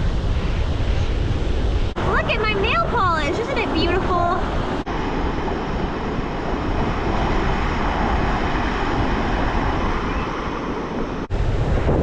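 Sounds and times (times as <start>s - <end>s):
ocean surf on beach: 0.0s - 12.0s
wind buffeting microphone: 0.0s - 12.0s.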